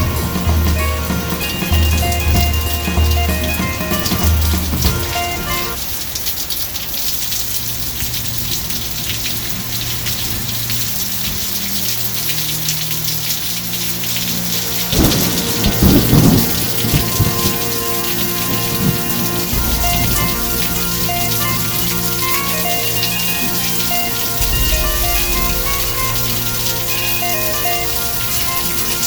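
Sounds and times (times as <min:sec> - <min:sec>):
heavy rain pouring: 0:00.0 - 0:29.0
low rumble of thunder: 0:14.9 - 0:23.6, 0:24.3 - 0:29.0.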